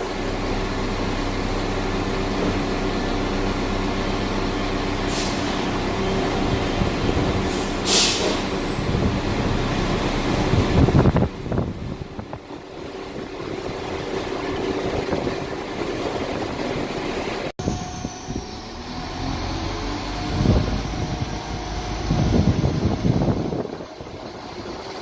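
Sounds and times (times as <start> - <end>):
train engine humming: 0.0 - 25.0
train wheel and rail noise: 0.0 - 25.0.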